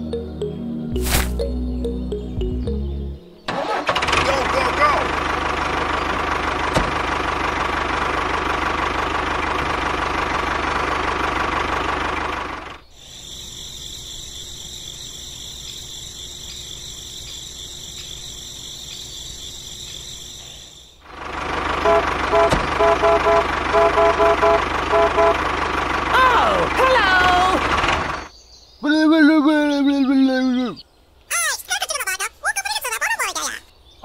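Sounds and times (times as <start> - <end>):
tractor engine running: 3.4 - 28.3.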